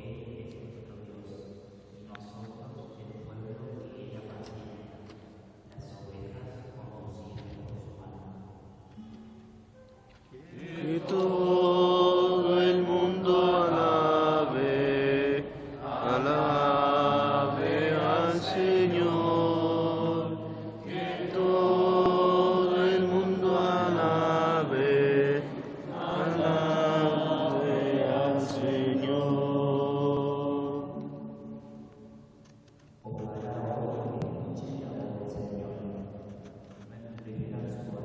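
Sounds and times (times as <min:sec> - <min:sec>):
voices singing a slow chant: 0:10.3 - 0:32.3.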